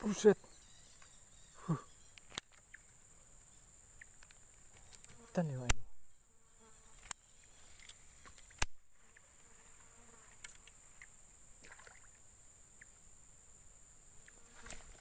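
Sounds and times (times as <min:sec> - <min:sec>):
insects droning: 0:00.0 - 0:15.0
sharp click: 0:04.1 - 0:05.9, 0:08.6 - 0:08.8.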